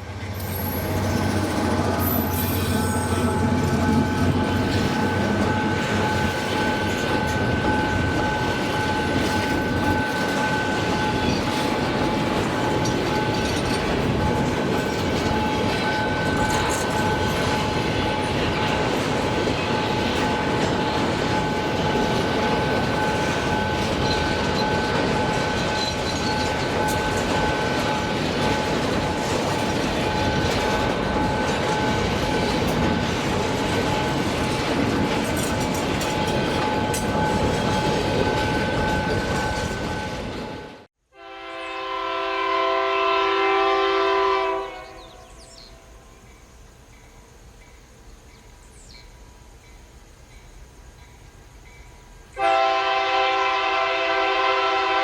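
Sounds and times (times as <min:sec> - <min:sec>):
freight train wagons rumbling: 0:00.0 - 0:40.9.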